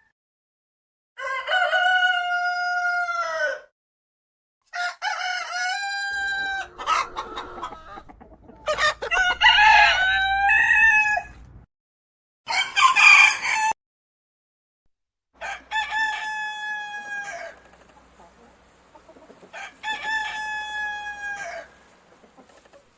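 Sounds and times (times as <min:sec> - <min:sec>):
rooster crowing: 0:01.2 - 0:03.7, 0:04.7 - 0:11.5, 0:12.5 - 0:13.8, 0:15.4 - 0:17.7, 0:19.5 - 0:21.8.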